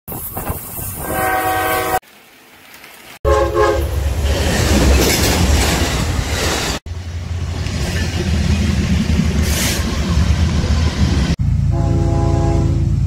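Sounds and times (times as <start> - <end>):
locomotive horn: 1.0 - 2.0, 3.2 - 4.0, 11.7 - 13.0
train rumbling past: 3.3 - 13.0
clattering train wheels: 4.2 - 6.8.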